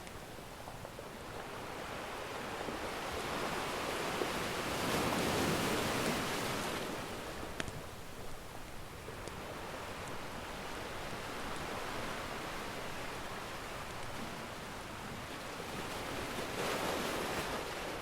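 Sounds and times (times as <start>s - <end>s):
ocean surf wave: 1.2s - 18.0s.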